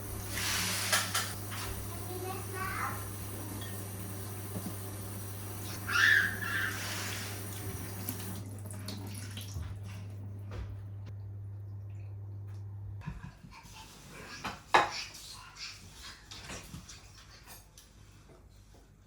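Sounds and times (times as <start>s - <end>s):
steady low hum: 1.2s - 5.9s, 7.3s - 13.0s.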